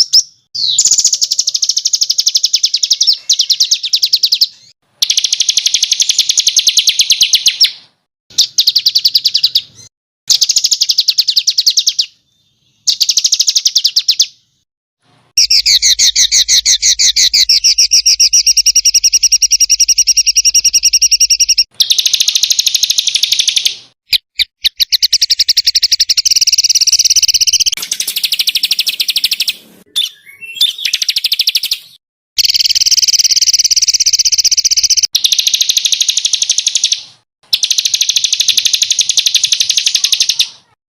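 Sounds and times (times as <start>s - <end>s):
songbird rapid rattling trills: 15.4s - 23.7s.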